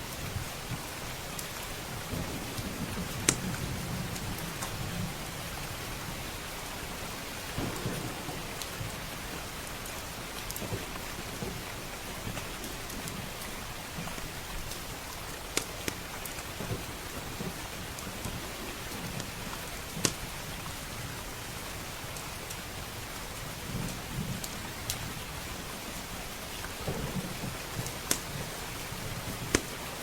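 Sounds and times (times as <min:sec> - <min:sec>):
heavy rain: 0:00.0 - 0:30.0
low rolling thunder: 0:07.5 - 0:11.6, 0:26.8 - 0:29.4
wood fire crackling and popping: 0:07.5 - 0:20.7, 0:26.0 - 0:30.0.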